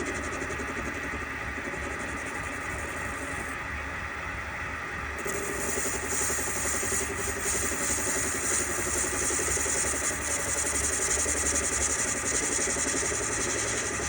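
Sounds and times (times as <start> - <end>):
lathe motor hum: 4.6 - 14.0.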